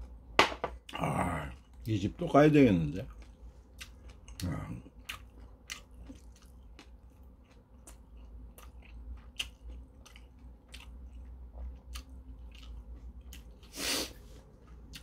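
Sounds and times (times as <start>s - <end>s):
man chewing with smacking clicks: 2.9s - 13.8s, 14.5s - 15.0s.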